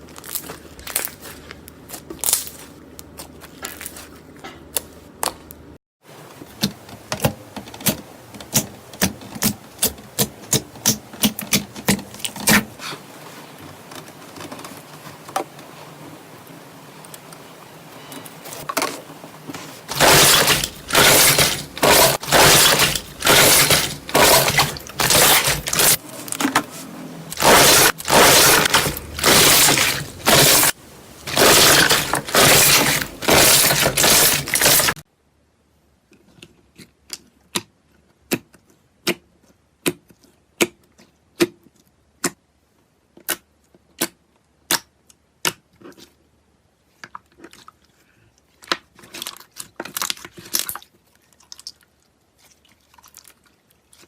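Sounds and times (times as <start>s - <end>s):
slime squishing: 19.6s - 26.0s, 27.3s - 35.0s, 47.0s - 54.0s.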